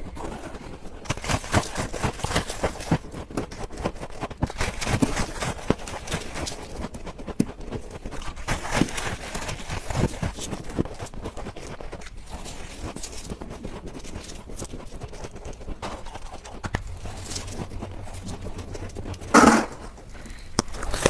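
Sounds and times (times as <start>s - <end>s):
chewing crunchy ice: 0.0s - 21.0s.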